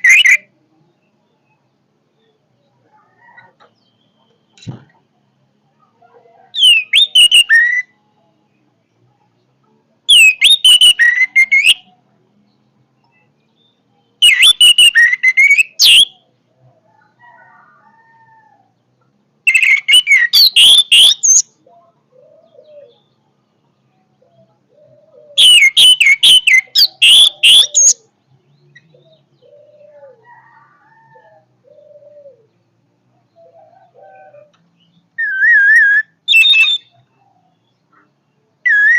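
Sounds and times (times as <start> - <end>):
thrush singing whistled phrases: 0.0 - 0.5, 6.6 - 8.0, 10.1 - 11.9, 14.2 - 16.2, 19.5 - 21.5, 25.4 - 28.0, 35.2 - 36.9, 38.6 - 38.9.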